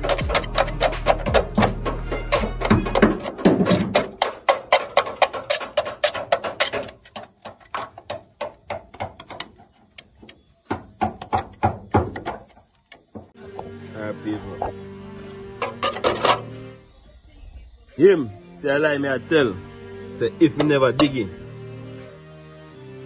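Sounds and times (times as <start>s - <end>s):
hand tool chipping sheet metal: 0.0s - 13.4s, 20.3s - 21.4s.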